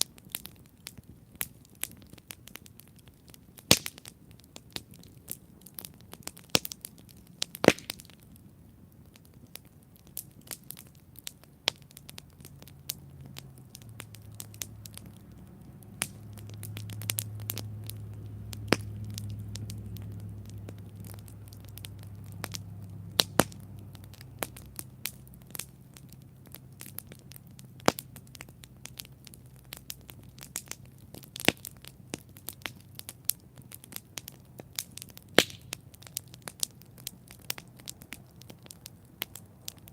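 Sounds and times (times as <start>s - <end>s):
campfire crackling: 0.0s - 39.9s
sharp fire pops: 0.0s - 39.9s
low rumble: 12.2s - 27.4s.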